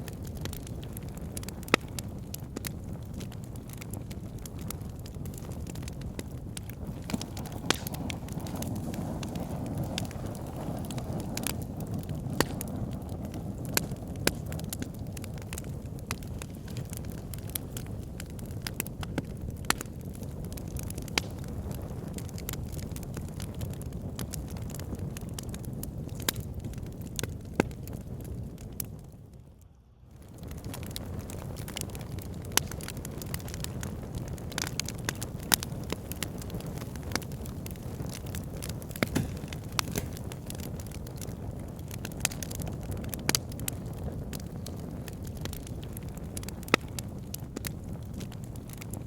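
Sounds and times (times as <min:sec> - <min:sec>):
fire pit crackling: 0:00.0 - 0:49.0
low rumble of flame: 0:00.0 - 0:49.0.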